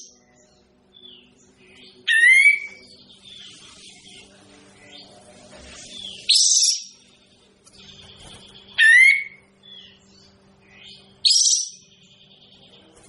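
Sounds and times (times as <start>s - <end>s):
faint steady hum: 0.0s - 13.0s
bird calling: 1.0s - 4.1s, 8.0s - 12.0s.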